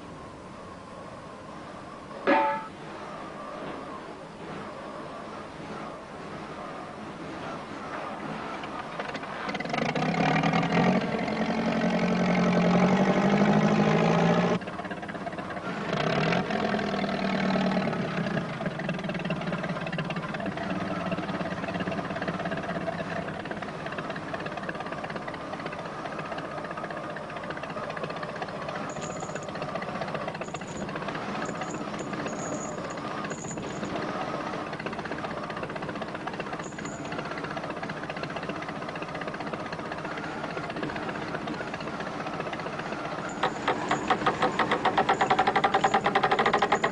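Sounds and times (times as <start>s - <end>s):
engine working hard: 2.2s - 46.9s
short high squeaks: 28.7s - 34.6s, 36.4s - 37.6s, 43.0s - 46.9s.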